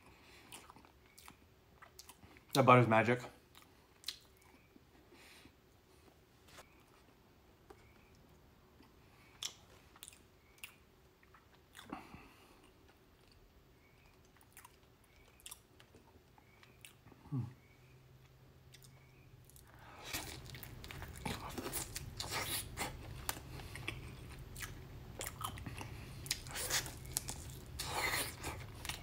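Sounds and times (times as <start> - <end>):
person chewing: 0.3 - 2.6, 3.5 - 4.8, 8.8 - 17.5, 18.2 - 29.0.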